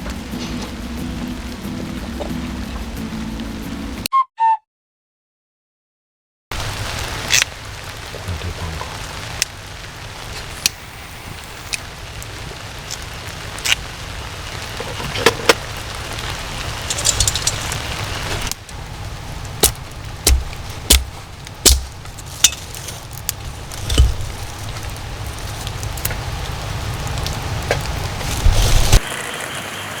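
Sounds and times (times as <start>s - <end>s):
rain falling: 0.0s - 4.0s, 6.5s - 30.0s
crackling: 6.5s - 30.0s.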